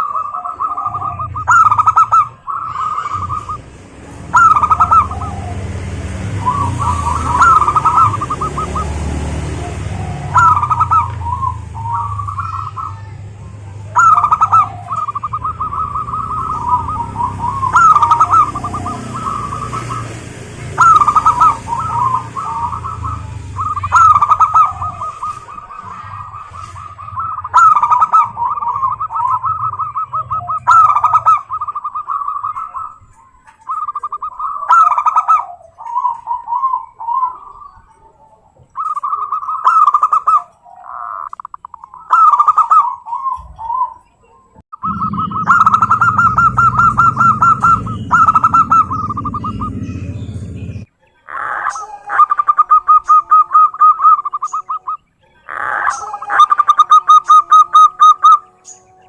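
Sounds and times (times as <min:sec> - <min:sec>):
dove cooing: 0:00.0 - 0:59.0.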